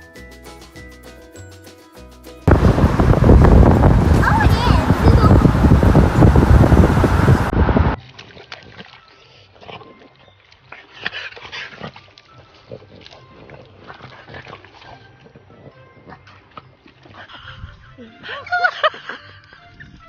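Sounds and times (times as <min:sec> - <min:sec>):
loud rushing noise: 0:02.5 - 0:08.0.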